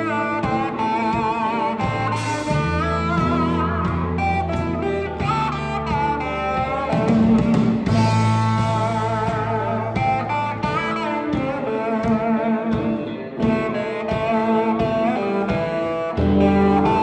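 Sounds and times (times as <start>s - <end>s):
electric steel guitar sliding melody: 0.0s - 17.0s
gospel band playing: 0.0s - 17.0s.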